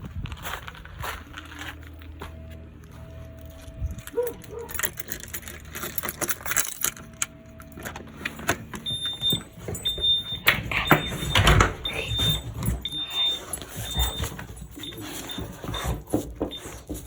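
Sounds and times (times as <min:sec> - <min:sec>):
keys jangling: 0:03.9 - 0:17.0
high electronic beep: 0:08.9 - 0:16.7.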